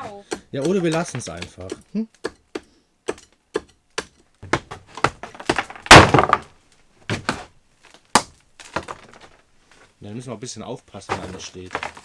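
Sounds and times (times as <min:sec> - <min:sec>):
hammer striking masonry: 0:00.0 - 0:06.5, 0:08.2 - 0:09.0
breaking stone crashing down: 0:04.5 - 0:07.5, 0:08.1 - 0:09.4, 0:11.0 - 0:12.0.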